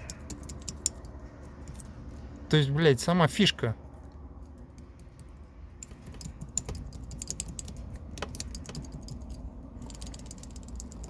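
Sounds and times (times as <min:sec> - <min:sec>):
plastic connector rattling and clicking: 0:04.4 - 0:11.0.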